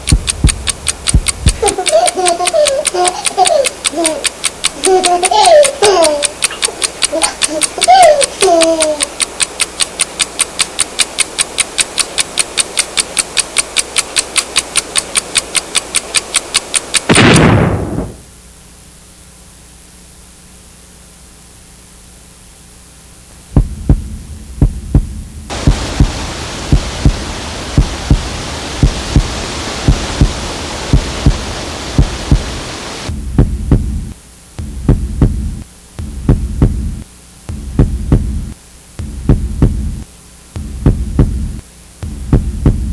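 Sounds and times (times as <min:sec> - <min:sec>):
deep heartbeat-like thumps: 0:00.0 - 0:01.6, 0:23.5 - 0:42.9
fast even ticking: 0:00.0 - 0:17.5, 0:23.6 - 0:42.9
low steady hum: 0:00.0 - 0:42.9
hiss: 0:25.5 - 0:33.1.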